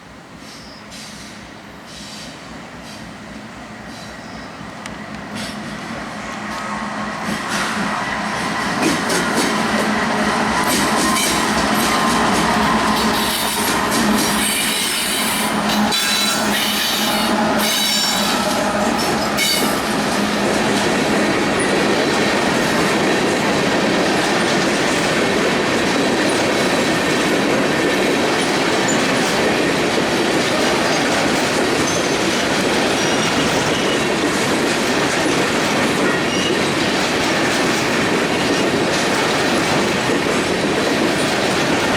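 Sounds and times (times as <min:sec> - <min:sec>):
train wheels clattering over rail joints: 0:05.1 - 0:41.9
high-pitched wheel squeal: 0:12.9 - 0:19.9.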